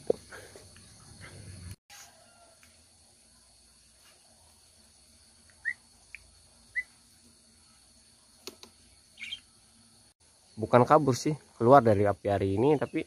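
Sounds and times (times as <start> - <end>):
bird chirping: 5.5 - 7.0, 8.7 - 9.6.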